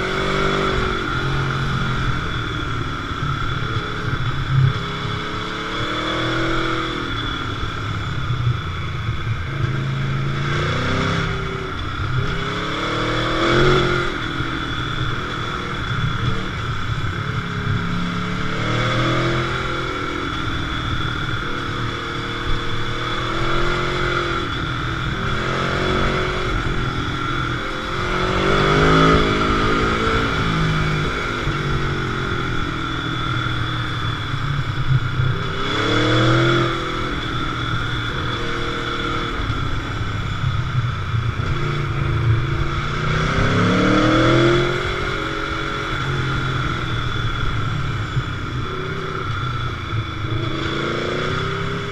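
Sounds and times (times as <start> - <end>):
motorcycle engine accelerating: 0.0 - 51.9.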